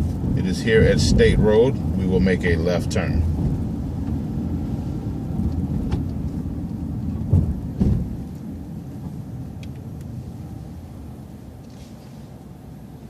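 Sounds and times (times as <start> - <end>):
bus engine and road rumble: 0.0 - 13.0
short clunks: 7.1 - 9.2.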